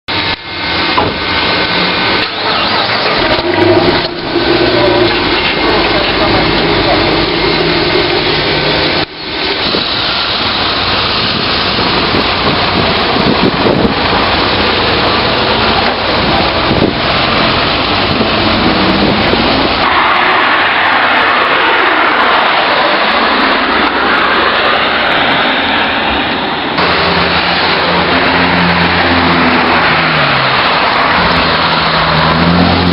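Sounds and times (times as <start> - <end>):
road noise: 0.0 - 32.9
loud car engine: 0.1 - 32.9.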